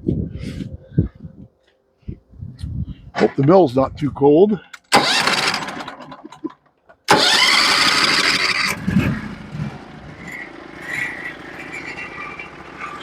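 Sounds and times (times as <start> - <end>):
starter motor cranking engine: 4.8 - 13.0
engine running with low knocks: 7.2 - 13.0.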